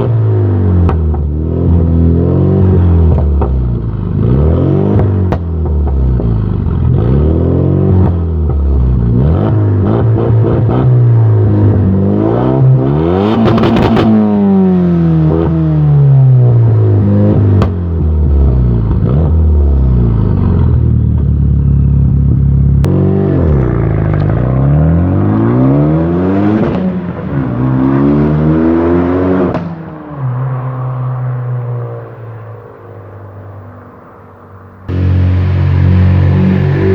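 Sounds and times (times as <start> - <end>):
car engine revving: 0.0 - 32.1, 34.8 - 36.9
exhaust crackles and pops: 5.0 - 7.0.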